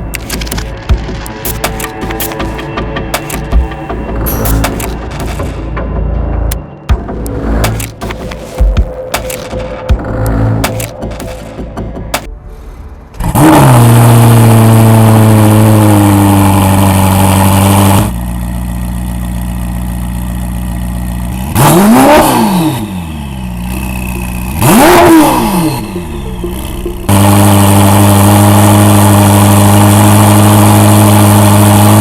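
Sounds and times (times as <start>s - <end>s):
car engine starting and idling: 0.0s - 32.0s
car engine revving: 13.1s - 32.0s.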